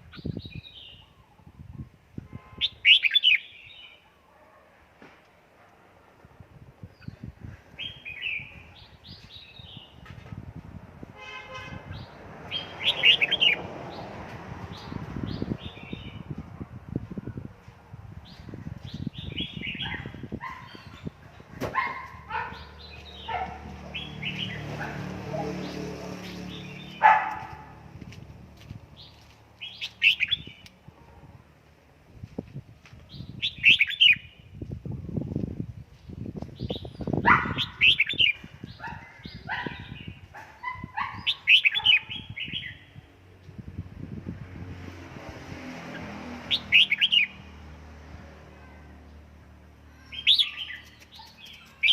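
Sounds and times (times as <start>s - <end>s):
bulbul singing: 50.0s - 51.9s.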